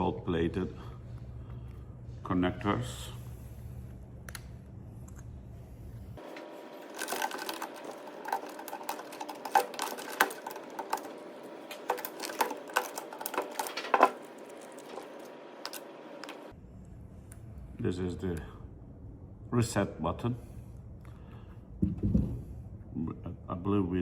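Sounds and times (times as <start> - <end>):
small parts clicking and knocking: 6.3 - 16.5.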